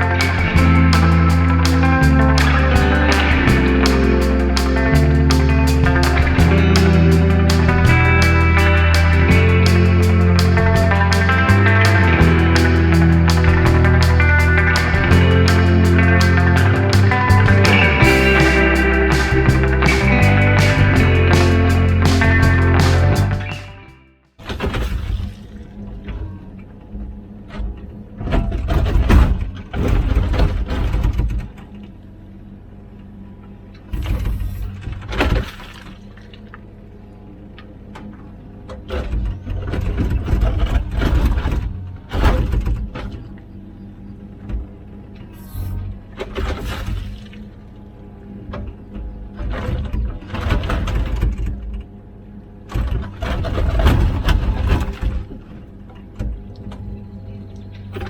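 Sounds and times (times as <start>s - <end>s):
diesel engine running: 0.0s - 24.1s.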